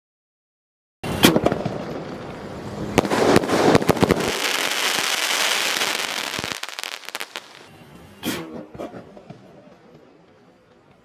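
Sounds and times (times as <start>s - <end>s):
firework crackling: 1.1s - 7.7s
firework cracks and pops: 1.1s - 7.7s.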